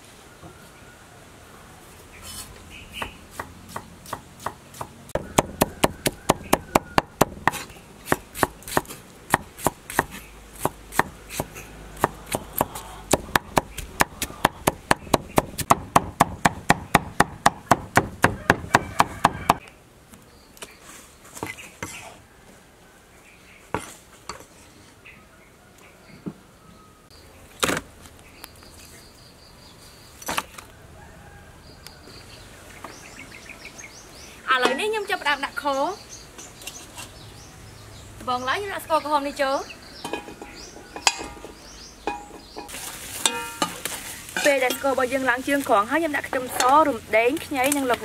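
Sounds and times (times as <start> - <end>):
cleaver chopping on wooden block: 3.0 - 19.6.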